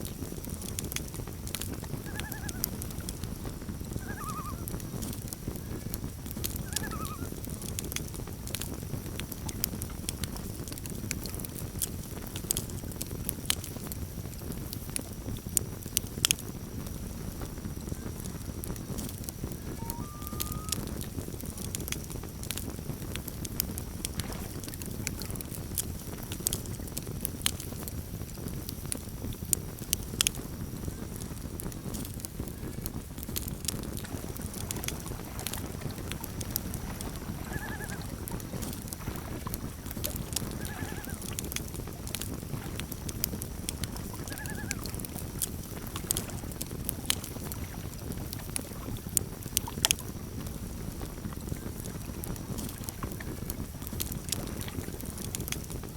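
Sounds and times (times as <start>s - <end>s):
campfire crackling: 0.0s - 55.9s
short pitched calls: 4.0s - 4.7s, 6.6s - 7.4s, 19.6s - 20.9s, 37.4s - 38.1s, 40.6s - 41.2s, 44.3s - 44.8s.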